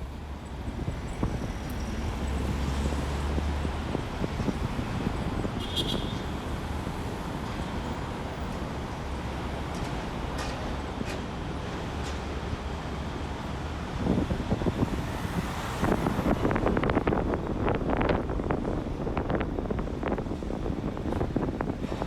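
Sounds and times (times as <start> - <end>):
road traffic passing: 0.0 - 22.0
wind buffeting microphone: 0.6 - 7.2, 14.0 - 22.0.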